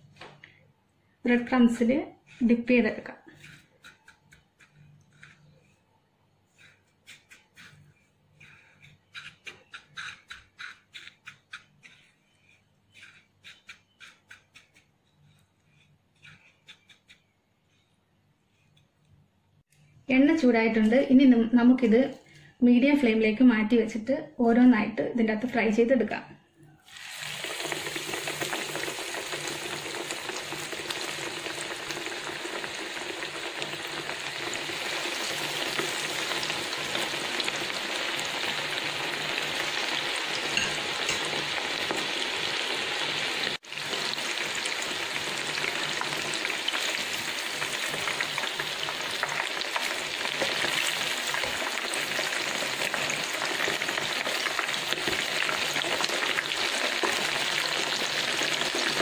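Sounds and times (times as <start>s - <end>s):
frying in hot oil: 26.8s - 59.0s.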